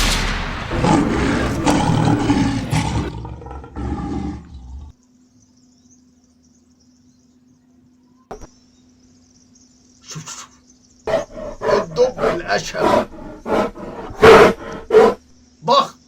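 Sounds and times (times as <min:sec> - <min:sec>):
lion roaring: 0:00.0 - 0:05.0, 0:11.1 - 0:15.2.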